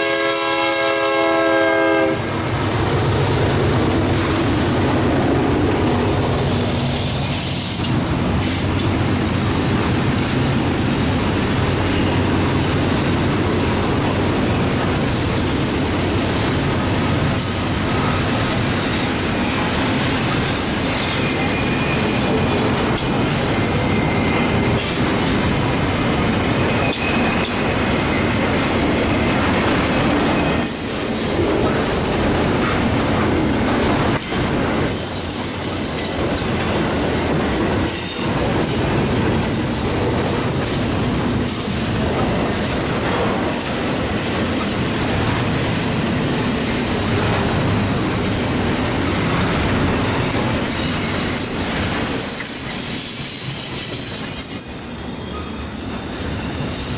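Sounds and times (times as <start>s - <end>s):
freight train rumbling past: 0.0s - 56.9s
high wheel squeals: 20.6s - 25.0s, 26.5s - 29.1s, 48.3s - 56.9s.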